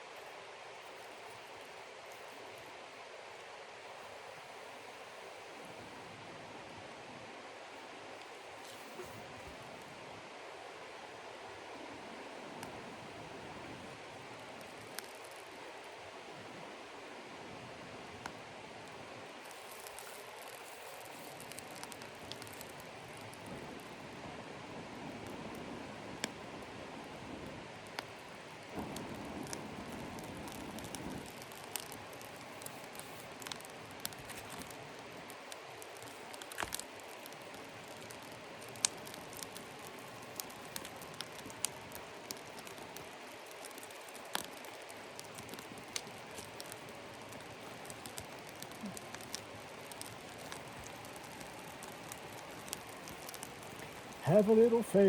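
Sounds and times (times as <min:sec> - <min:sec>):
steady rain: 0:00.0 - 0:55.0
rustling: 0:08.2 - 0:09.9, 0:19.4 - 0:23.9, 0:27.8 - 0:55.0
sharp ticks and pops: 0:14.4 - 0:15.9, 0:18.2 - 0:24.0, 0:25.2 - 0:26.4, 0:27.4 - 0:55.0.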